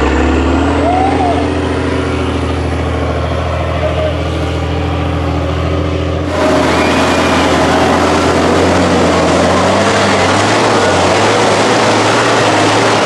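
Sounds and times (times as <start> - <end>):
diesel truck engine revving: 0.0 - 13.0.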